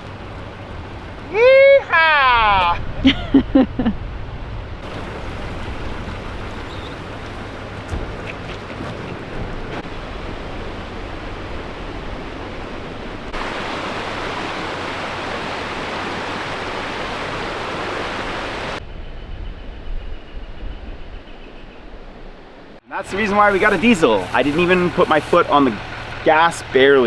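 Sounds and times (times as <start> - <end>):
diesel truck engine idling: 4.8 - 9.3, 23.0 - 27.0
knocks: 4.9 - 9.8
steady rushing noise: 23.0 - 27.0.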